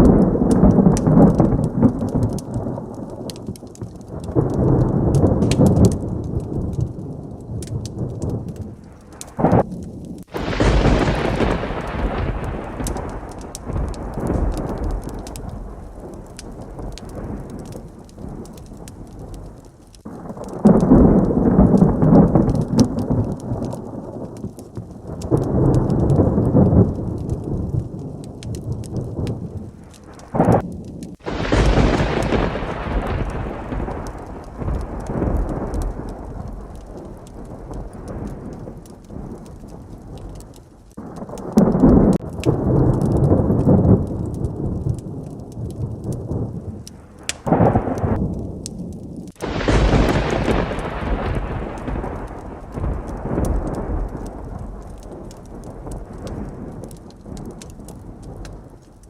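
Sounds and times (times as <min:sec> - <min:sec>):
loud close thunderclap: 0:00.0 - 0:59.0
steady rain: 0:00.0 - 0:59.0
thunder rumbling: 0:00.0 - 0:59.0.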